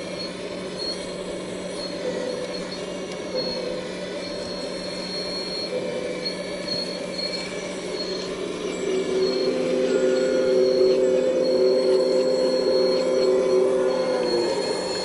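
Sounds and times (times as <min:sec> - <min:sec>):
high-pitched metallic squeal: 0:00.0 - 0:15.0
excavator engine running: 0:00.2 - 0:15.0.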